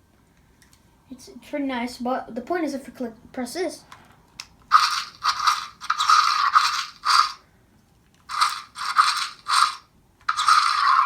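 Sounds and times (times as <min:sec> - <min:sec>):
toy electronic roar bursts: 0:04.7 - 0:07.4, 0:08.3 - 0:11.0.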